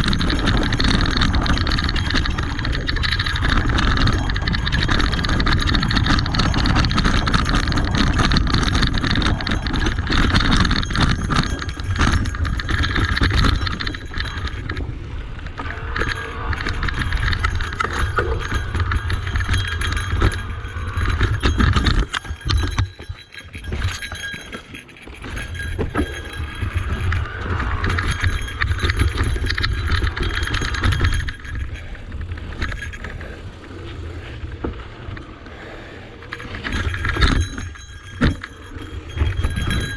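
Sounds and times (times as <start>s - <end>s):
bike parts rattling: 0.0s - 39.9s
wind on microphone: 0.0s - 39.9s.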